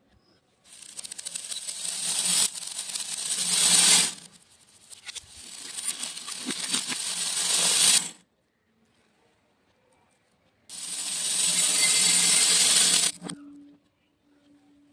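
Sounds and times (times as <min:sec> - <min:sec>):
beads pouring and rattling: 0:00.7 - 0:08.2, 0:10.7 - 0:13.3.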